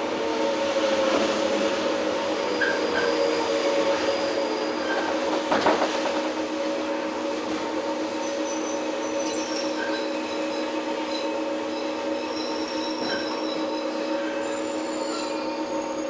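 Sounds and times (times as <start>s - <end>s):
rumble of train wheels: 0.0s - 16.0s
high wheel squeal: 2.4s - 5.4s, 7.9s - 16.0s.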